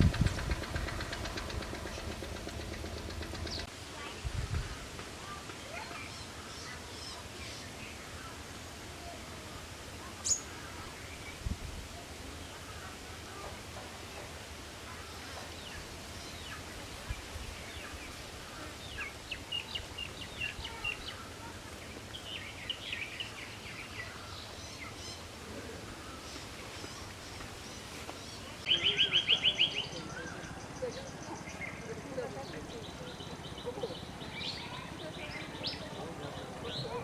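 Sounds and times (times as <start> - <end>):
rapid bird note run: 0.0 - 3.7
songbirds chirping: 0.0 - 3.7, 5.8 - 37.0
background noise: 0.0 - 37.0.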